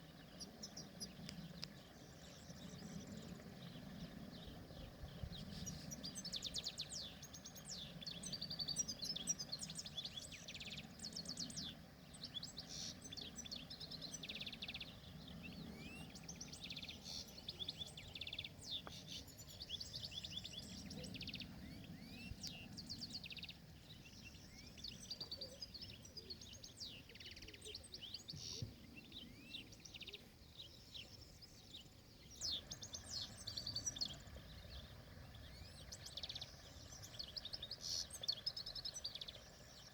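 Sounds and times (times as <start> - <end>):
finch twittering and trilling: 0.0 - 39.9
low background rumble: 32.4 - 39.9.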